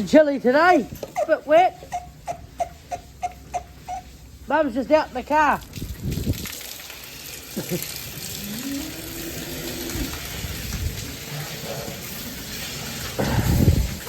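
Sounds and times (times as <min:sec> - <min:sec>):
steady rain hiss: 0:04.2 - 0:14.0.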